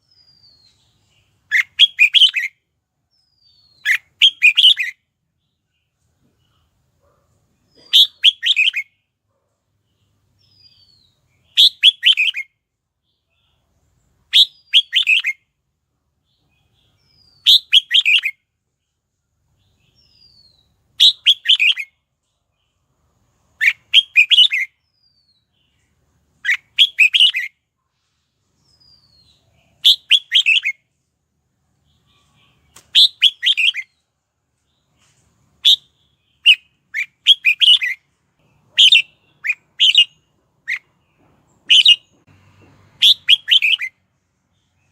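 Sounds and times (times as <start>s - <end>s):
bulbul singing chirping phrases: 0.0s - 5.8s, 7.7s - 9.0s, 9.9s - 13.6s, 19.6s - 22.0s, 23.6s - 27.5s, 28.7s - 30.8s, 35.6s - 41.0s, 41.6s - 42.1s.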